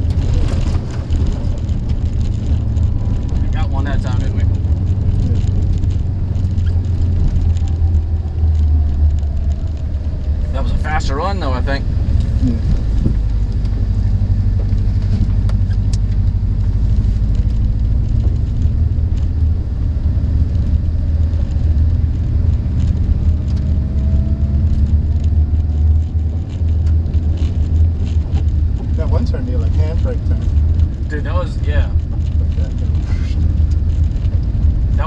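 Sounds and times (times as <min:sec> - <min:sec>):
car engine and tyre rumble: 0:00.0 - 0:35.0.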